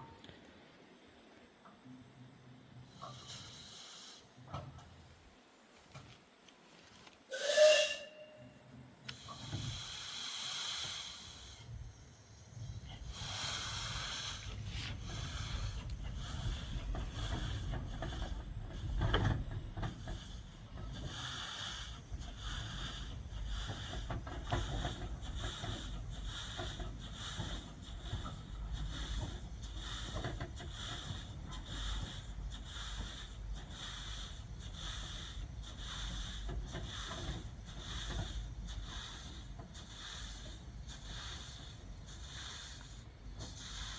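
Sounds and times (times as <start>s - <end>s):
hissing steam: 2.9s - 4.4s, 7.3s - 8.3s, 9.0s - 43.9s
steam locomotive whistle: 7.3s - 8.7s
locomotive exhaust chuffs: 7.3s - 43.9s.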